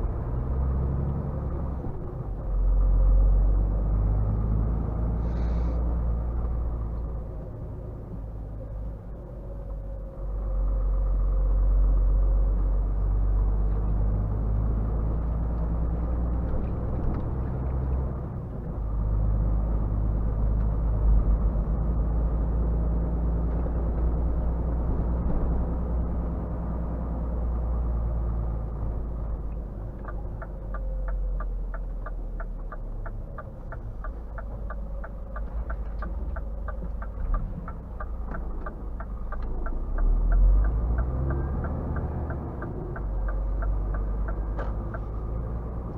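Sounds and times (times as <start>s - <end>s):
lorry diesel engine running: 0.0s - 45.9s
turn signal indicator ticking: 29.4s - 45.9s.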